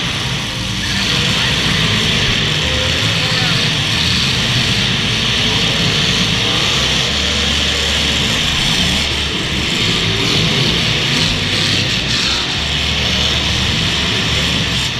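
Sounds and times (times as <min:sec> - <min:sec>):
car engines revving loudly: 0:00.0 - 0:14.9
steady wash of noise: 0:00.0 - 0:14.9.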